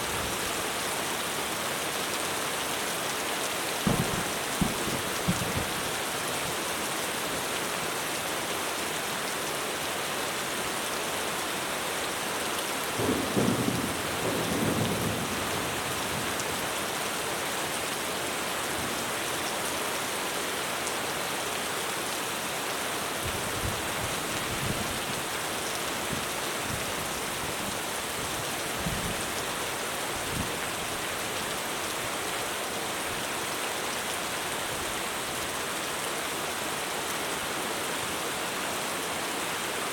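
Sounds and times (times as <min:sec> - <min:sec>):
heavy rain on a roof: 0:00.0 - 0:39.9
thunder rumbling: 0:03.8 - 0:05.8.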